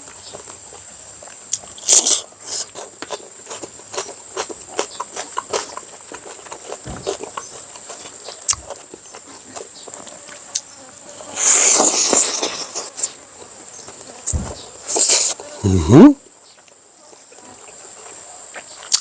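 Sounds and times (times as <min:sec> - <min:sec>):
wet chewing and lip smacks: 0:00.4 - 0:10.7, 0:18.8 - 0:19.0.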